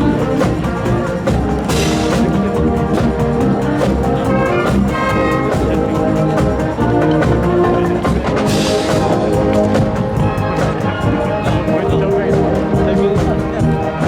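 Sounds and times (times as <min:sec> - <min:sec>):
marching drums: 0:00.0 - 0:14.0
trumpets and trombones: 0:00.0 - 0:14.0.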